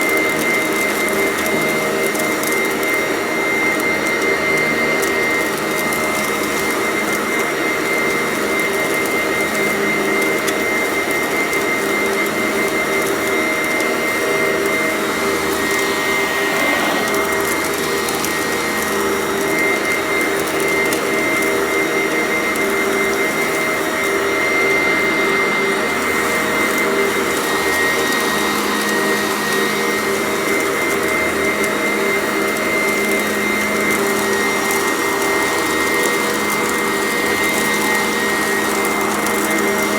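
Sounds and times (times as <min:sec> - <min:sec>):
vacuum cleaner motor whine: 0:00.0 - 0:39.9
crunchy debris being vacuumed: 0:11.2 - 0:39.9.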